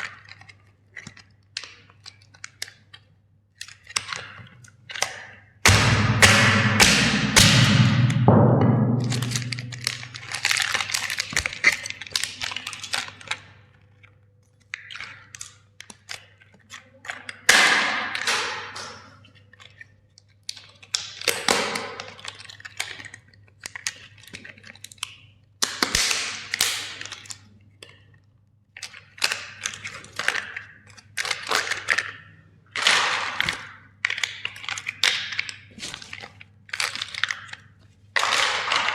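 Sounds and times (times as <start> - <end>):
plastic toy cracking and crunching: 0.0 - 5.5, 9.8 - 18.7, 19.3 - 38.9
heavy thud: 5.7 - 10.5.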